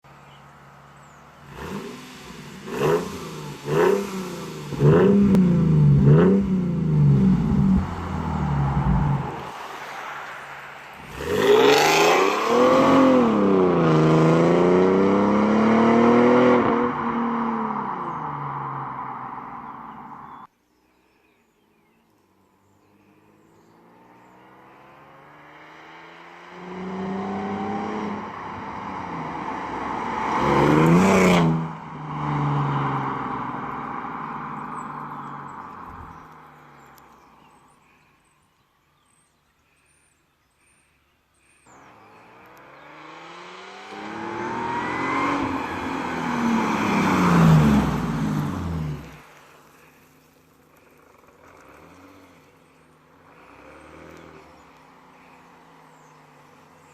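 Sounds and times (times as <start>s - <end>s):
car accelerating past: 1.4s - 20.4s, 23.4s - 36.9s, 41.7s - 49.9s.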